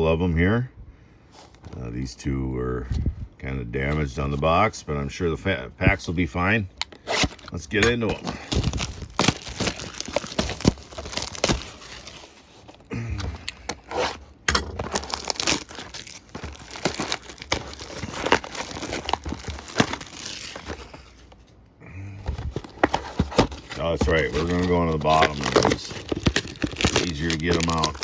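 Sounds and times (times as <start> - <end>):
packaging crinkling and tearing: 6.7 - 21.5, 22.2 - 28.0.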